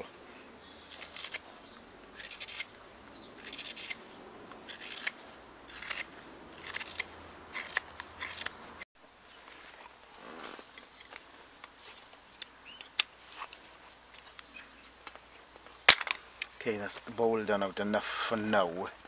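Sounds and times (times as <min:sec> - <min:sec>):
gouge cutting wood: 0:02.2 - 0:02.7, 0:03.4 - 0:04.0, 0:04.6 - 0:08.6.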